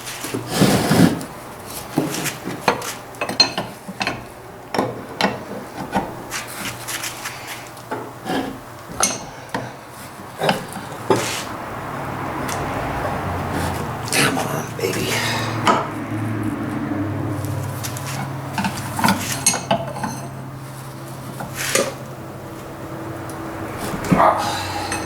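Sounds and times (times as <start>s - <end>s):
hand tools clinking on metal: 8.9s - 9.8s, 17.8s - 22.0s, 23.3s - 25.0s.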